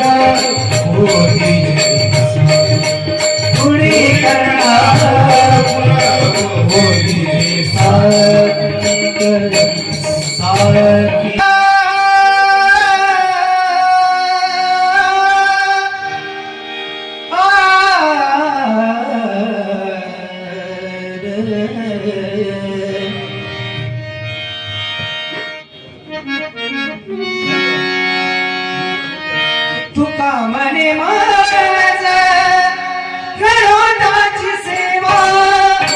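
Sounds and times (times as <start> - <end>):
person singing wordless melody: 0.0 - 24.6, 26.2 - 35.9
harmonium sustained notes: 0.0 - 35.9
tabla: 0.0 - 35.9
small hand cymbals: 0.1 - 10.8.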